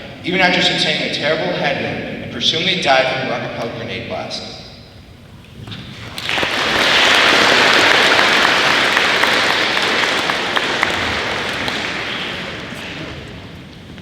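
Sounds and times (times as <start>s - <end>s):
audience applause: 6.0s - 13.7s.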